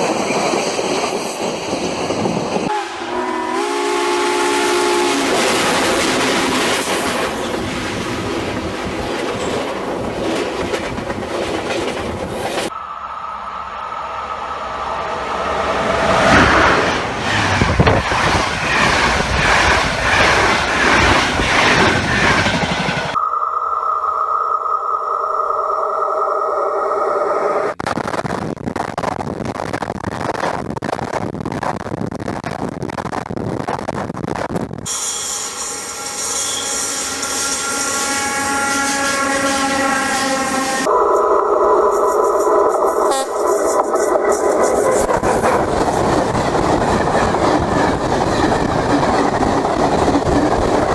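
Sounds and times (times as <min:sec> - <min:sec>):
train wheels clattering on rails: 0:05.2 - 0:12.7, 0:14.8 - 0:23.2, 0:43.4 - 0:50.9
high ringing tones: 0:12.7 - 0:15.9, 0:23.2 - 0:27.8, 0:34.9 - 0:44.3
steady hiss: 0:34.9 - 0:38.5
sharp train clank: 0:34.9 - 0:46.4.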